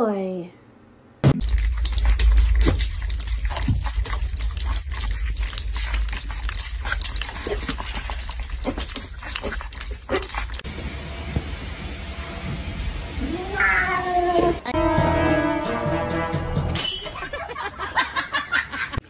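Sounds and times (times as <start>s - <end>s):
puppies smacking and lapping: 1.4s - 10.7s.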